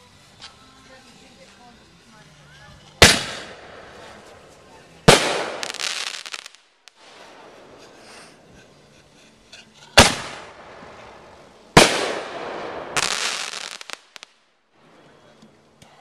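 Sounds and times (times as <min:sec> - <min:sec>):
fireworks crackling: 0:00.0 - 0:15.0
fireworks bangs with echo: 0:03.0 - 0:08.0, 0:10.0 - 0:14.3.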